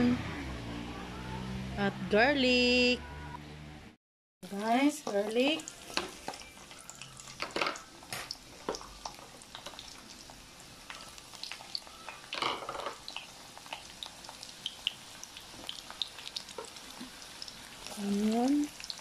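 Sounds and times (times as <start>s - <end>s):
garlic sizzling in hot oil: 4.4s - 19.0s
oil crackles and pops: 5.0s - 19.0s.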